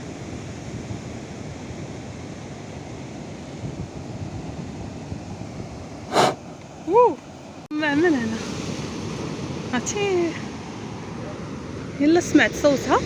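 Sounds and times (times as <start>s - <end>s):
sea surf rushing: 6.1s - 6.4s.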